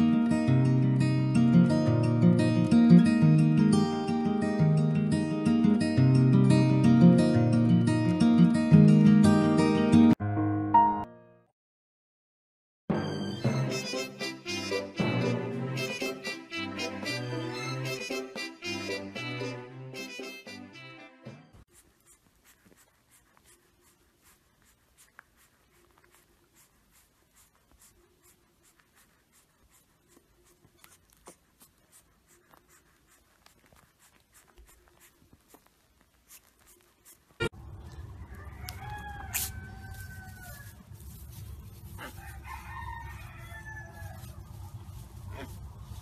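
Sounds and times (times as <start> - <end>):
drawn-out animal calls: 44.0 - 46.0.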